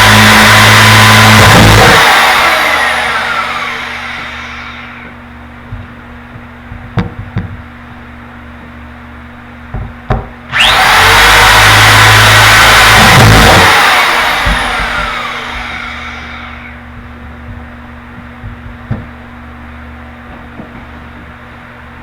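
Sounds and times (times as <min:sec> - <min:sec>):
power drill spinning: 0:00.0 - 0:05.2, 0:10.5 - 0:16.8.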